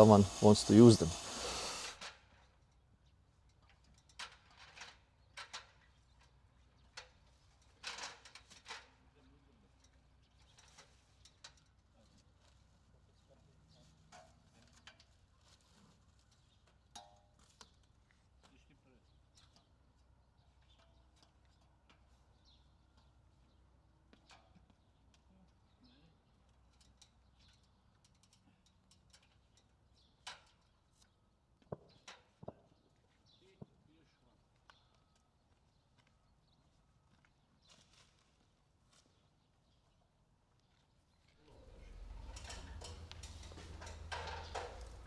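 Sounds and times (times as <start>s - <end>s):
faint clicks and knocks: 41.7s - 45.0s.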